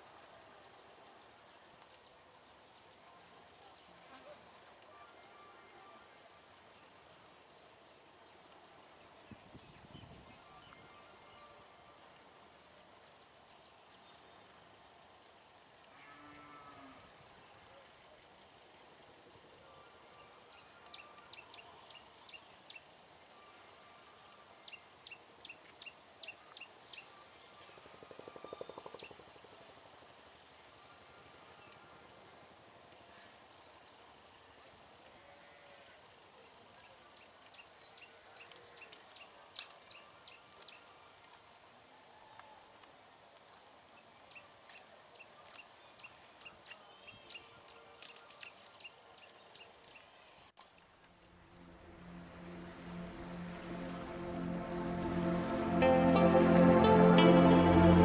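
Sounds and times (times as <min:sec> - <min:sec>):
faint background hiss: 0:00.0 - 0:58.0
bird chirping high notes: 0:52.4 - 0:58.0.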